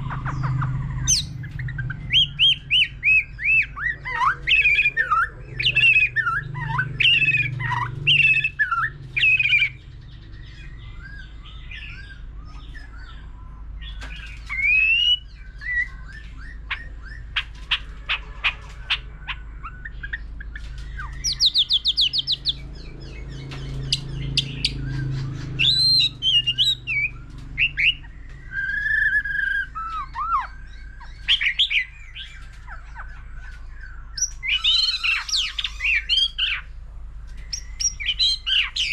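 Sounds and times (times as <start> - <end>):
bird singing whistled phrases: 10.6 - 17.4, 23.8 - 36.7.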